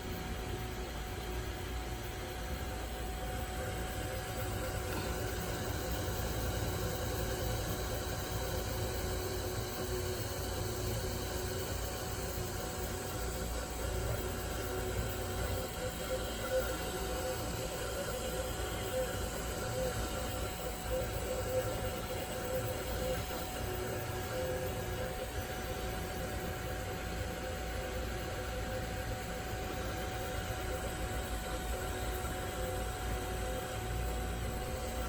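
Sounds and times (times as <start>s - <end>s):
three-d printer whirring: 0.0s - 35.0s.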